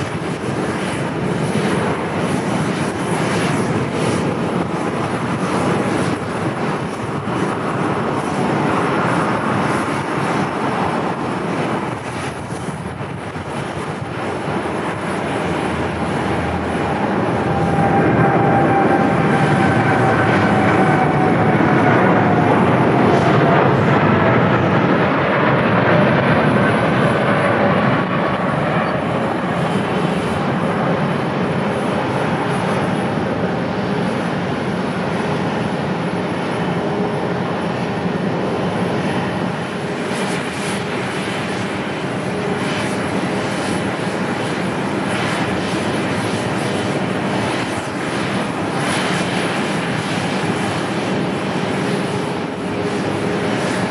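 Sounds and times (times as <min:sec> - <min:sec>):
jet airliner roar: 0:00.0 - 0:53.9.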